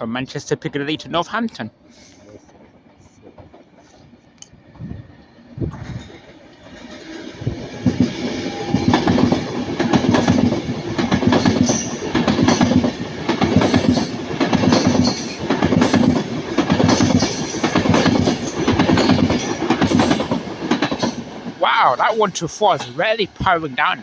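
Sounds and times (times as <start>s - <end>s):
train wheels clattering over rail joints: 5.8s - 21.6s.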